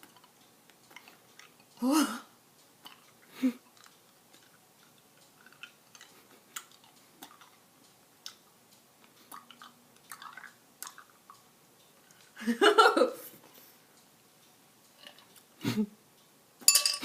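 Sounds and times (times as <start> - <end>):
cat mouth clicks and smacks: 2.8 - 8.4.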